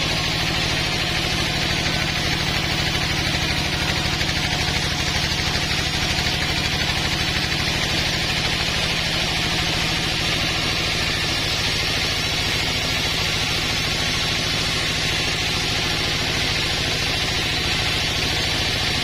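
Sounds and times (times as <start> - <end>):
sawmill engine pulsing hum: 0.0 - 19.0.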